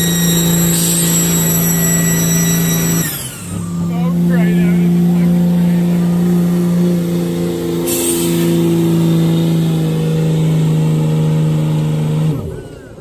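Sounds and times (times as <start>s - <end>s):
truck engine at high revs: 0.0s - 13.0s.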